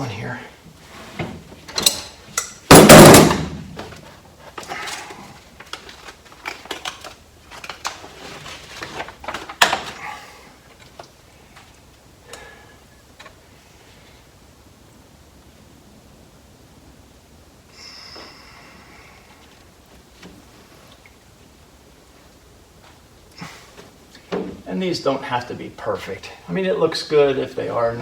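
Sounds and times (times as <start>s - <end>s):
sheets rustling and clicking: 1.0s - 12.5s
sharp knock: 2.7s - 3.7s.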